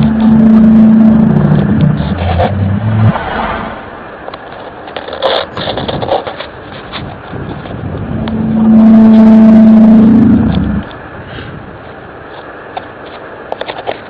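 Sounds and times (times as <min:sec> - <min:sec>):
horn-like low tone: 0:00.0 - 0:03.1, 0:08.0 - 0:10.9
crackling scratchy background: 0:00.0 - 0:03.2, 0:04.2 - 0:11.0, 0:11.8 - 0:14.0.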